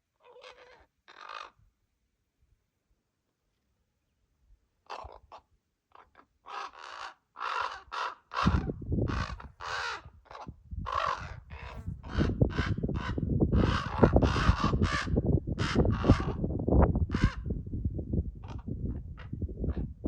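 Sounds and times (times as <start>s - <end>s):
ravens cawing: 0.4s - 1.6s, 6.5s - 16.4s, 17.1s - 17.5s.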